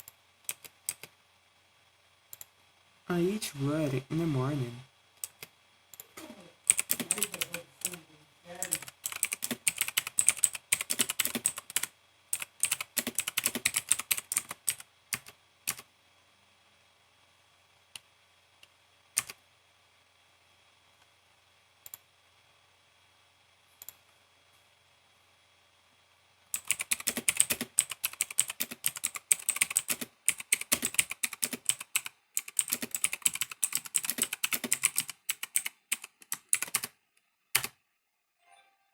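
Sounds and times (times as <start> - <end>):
mechanical keyboard typing: 0.0 - 1.1, 6.7 - 8.0, 8.6 - 15.9, 19.2 - 19.4, 26.6 - 37.8.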